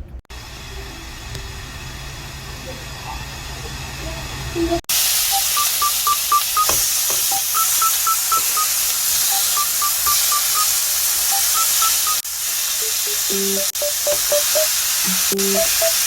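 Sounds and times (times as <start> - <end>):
food sizzling in a pan: 4.9 - 16.0
beeping background melody: 5.3 - 10.7, 11.3 - 12.2, 12.8 - 16.0.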